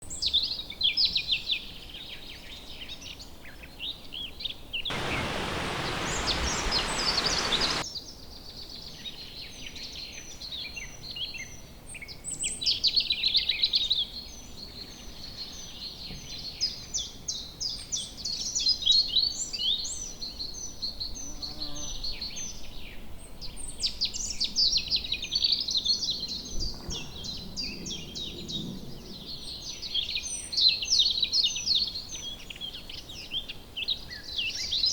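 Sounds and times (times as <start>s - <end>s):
loud even hiss: 4.9s - 7.8s
songbirds singing: 4.9s - 7.8s.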